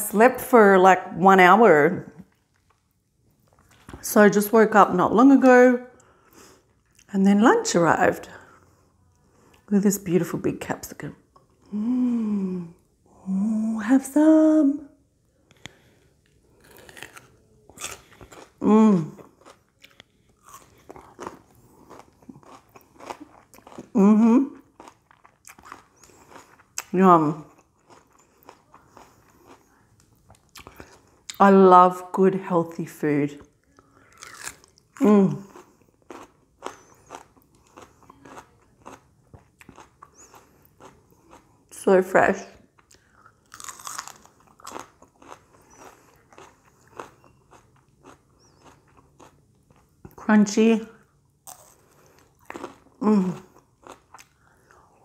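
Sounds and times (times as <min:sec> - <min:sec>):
crunchy chewing: 0:15.4 - 0:24.0, 0:24.6 - 0:31.4, 0:33.6 - 0:41.7, 0:42.8 - 0:50.2, 0:51.4 - 0:55.0.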